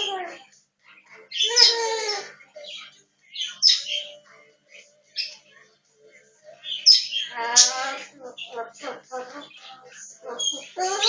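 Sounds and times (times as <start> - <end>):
parrot calling: 0.0 - 0.4, 1.2 - 4.2, 6.6 - 11.0
high-pitched chirps and squeaks: 6.6 - 11.0.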